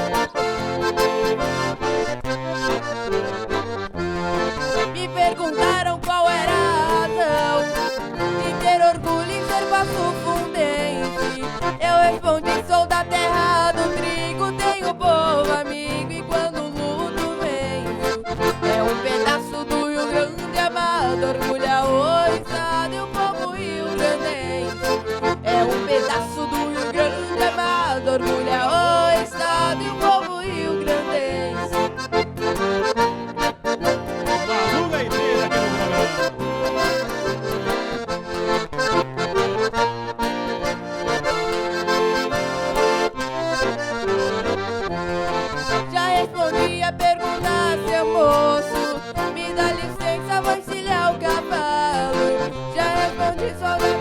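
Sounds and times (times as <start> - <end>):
lively accordion music: 0.0 - 54.0
bass line: 26.9 - 47.8.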